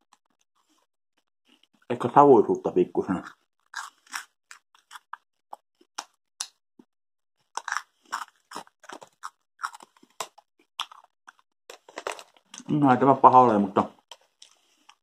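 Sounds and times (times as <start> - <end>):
crunchy cheese puffs chewing: 3.0 - 6.6, 7.4 - 15.0.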